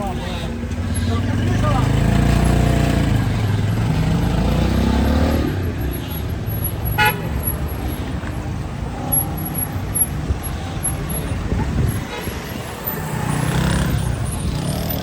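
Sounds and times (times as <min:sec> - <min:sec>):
street traffic noise: 0:00.0 - 0:15.0
vehicle engine passing: 0:01.2 - 0:06.5, 0:12.5 - 0:15.0.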